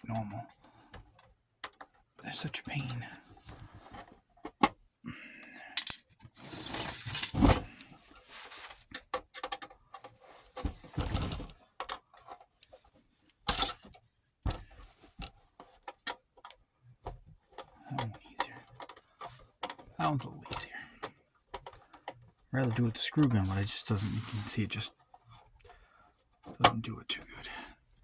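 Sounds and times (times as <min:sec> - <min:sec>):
small metal parts clinking: 0:05.8 - 0:07.6.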